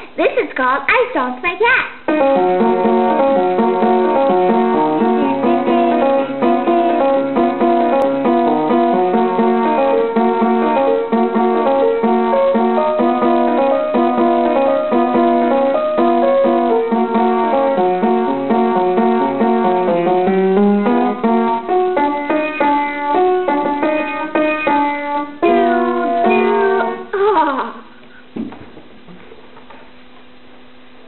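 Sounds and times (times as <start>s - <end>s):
solo piano tune: 2.1s - 27.2s.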